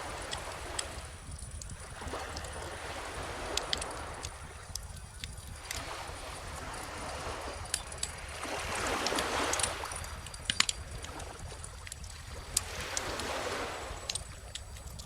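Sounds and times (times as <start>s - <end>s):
ocean waves washing in: 0.0s - 14.7s
bonfire crackling: 3.4s - 5.7s.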